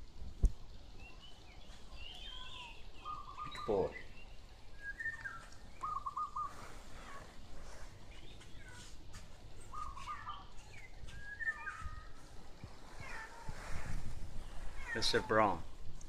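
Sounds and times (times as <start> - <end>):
bird chirping and trilling: 1.0 - 9.0, 9.6 - 15.8.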